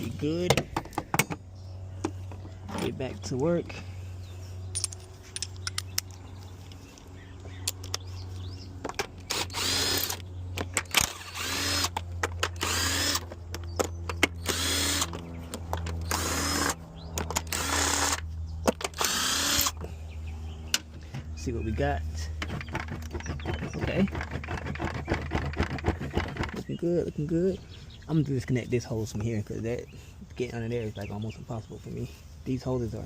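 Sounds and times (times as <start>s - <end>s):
cordless power tool whirring: 8.5s - 20.0s.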